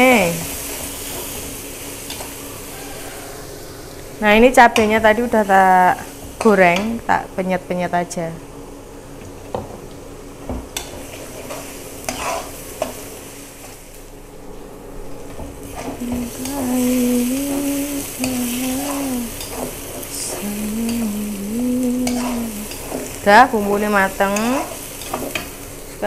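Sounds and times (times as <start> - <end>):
spice paste sizzling in oil: 0.0 - 6.8, 10.8 - 14.0, 15.6 - 26.0
metal spatula scraping a wok: 11.1 - 12.6.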